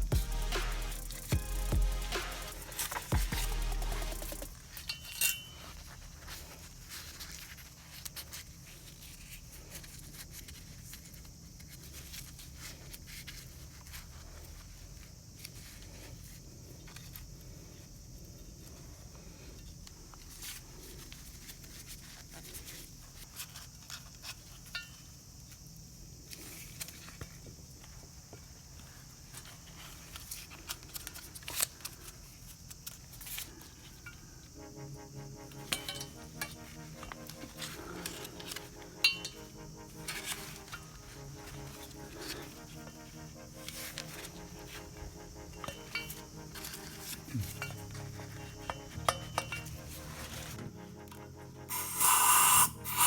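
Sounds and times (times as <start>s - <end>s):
steady hiss: 0.0s - 8.6s, 31.2s - 53.0s.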